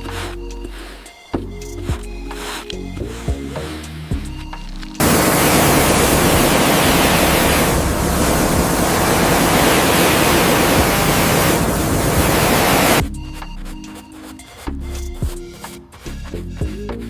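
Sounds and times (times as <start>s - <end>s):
loud rushing hiss: 5.0s - 13.0s.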